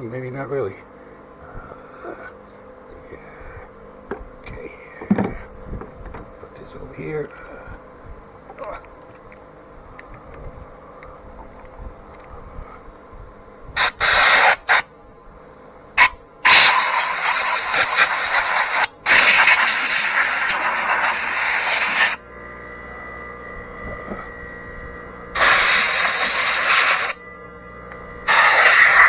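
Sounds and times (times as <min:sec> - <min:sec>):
faint steady hum: 0:00.0 - 0:29.0
pressurised spray hissing: 0:13.8 - 0:14.8, 0:16.0 - 0:22.2, 0:25.4 - 0:27.2, 0:28.3 - 0:29.0.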